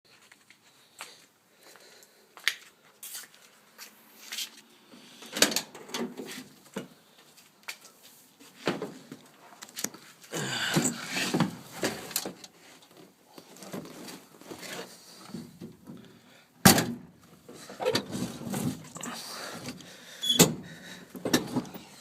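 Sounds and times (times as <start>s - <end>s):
handling knocks and rustling: 16.7s - 21.9s.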